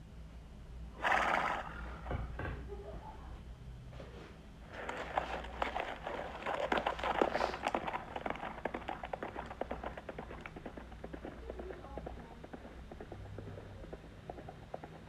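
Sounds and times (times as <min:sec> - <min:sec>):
horses hooves clattering: 0:04.8 - 0:15.0.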